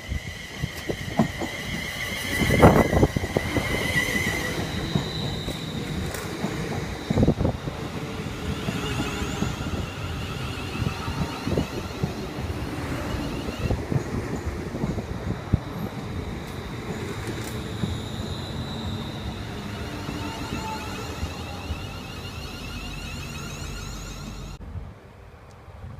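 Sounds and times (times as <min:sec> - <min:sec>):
wind buffeting microphone: 0:00.0 - 0:18.1
passing train rumble: 0:00.0 - 0:25.9.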